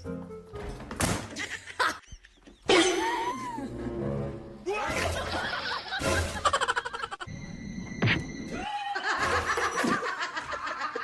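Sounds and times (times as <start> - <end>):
music: 0.0 - 1.2, 2.9 - 6.6
people laughing and snickering: 1.4 - 3.8, 4.8 - 7.3, 8.6 - 11.0.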